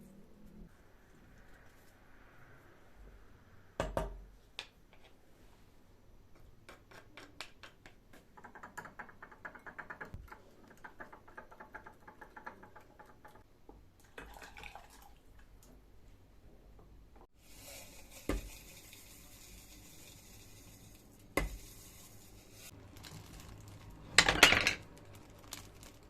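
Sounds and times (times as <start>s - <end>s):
pan sizzling: 17.3s - 24.8s.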